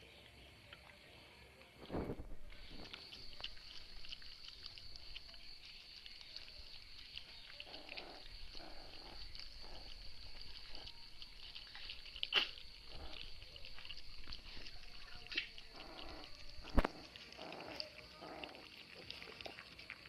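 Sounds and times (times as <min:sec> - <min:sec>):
dogs chewing and lapping: 0:00.0 - 0:20.0.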